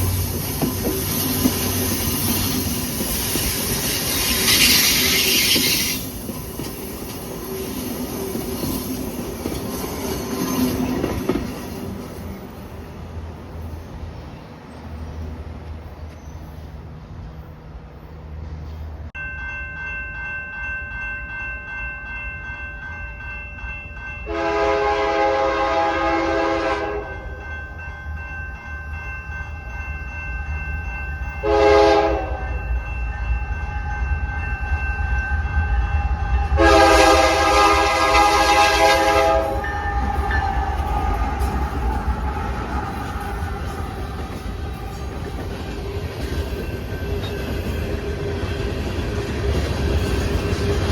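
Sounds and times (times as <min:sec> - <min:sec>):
passing train rumble: 0:00.0 - 0:50.9
locomotive air horn blasts: 0:24.3 - 0:27.1, 0:31.4 - 0:32.5, 0:36.6 - 0:39.9
steady ringing tone: 0:32.4 - 0:36.6.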